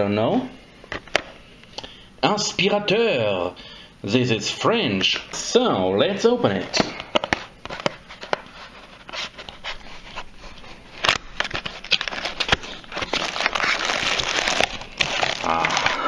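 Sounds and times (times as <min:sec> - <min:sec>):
packaging clicks and rustles: 0:06.9 - 0:16.0
packaging crinkling and tearing: 0:07.2 - 0:16.0.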